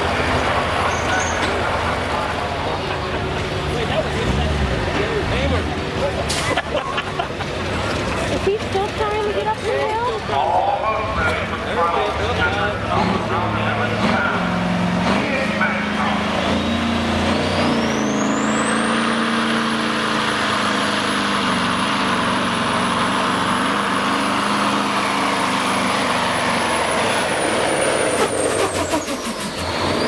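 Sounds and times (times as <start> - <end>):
diesel truck engine under load: 0.0 - 30.0
turbocharger whistle: 16.4 - 19.1, 26.6 - 30.0.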